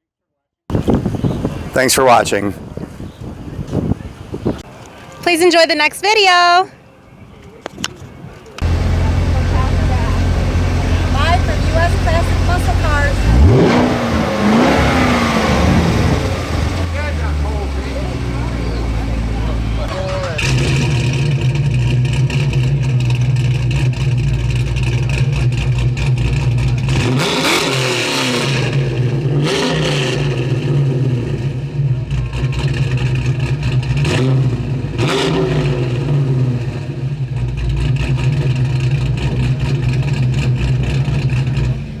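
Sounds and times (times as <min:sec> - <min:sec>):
car engine revving: 0:08.6 - 0:42.0.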